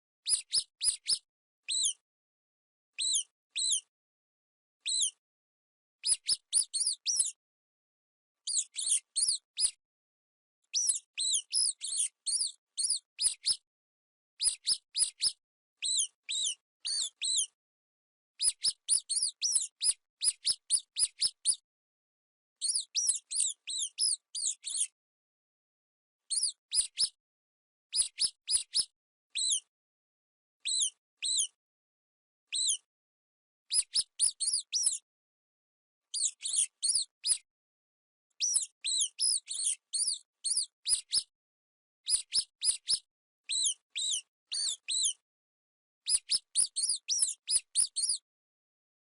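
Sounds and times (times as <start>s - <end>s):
mouse squeaks: 0.2s - 2.0s, 3.0s - 3.9s, 4.8s - 5.2s, 6.0s - 7.4s, 8.4s - 9.8s, 10.6s - 13.6s, 14.4s - 17.6s, 18.4s - 21.6s, 22.6s - 25.0s, 26.3s - 27.2s, 27.9s - 29.7s, 30.6s - 31.6s, 32.5s - 32.9s, 33.7s - 35.0s, 36.1s - 37.5s, 38.4s - 41.3s, 42.0s - 45.2s, 46.0s - 48.3s.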